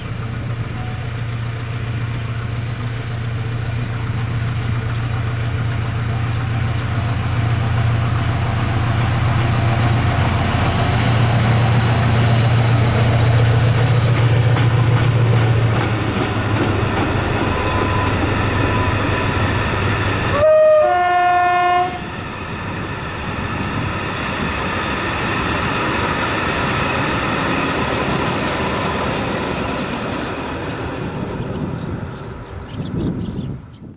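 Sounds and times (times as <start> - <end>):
train rolling: 0.0 - 33.6
diesel locomotive engine droning: 0.0 - 33.9
train horn: 17.5 - 19.2, 20.3 - 22.2.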